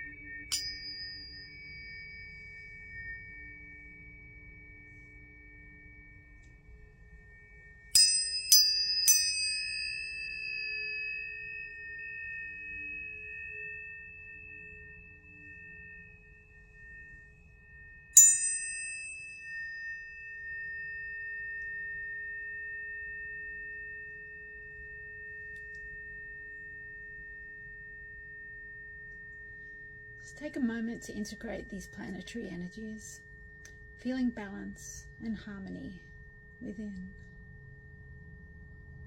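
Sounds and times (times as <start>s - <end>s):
tuning forks struck and ringing: 0.0s - 39.0s
faint low hum: 29.1s - 39.0s.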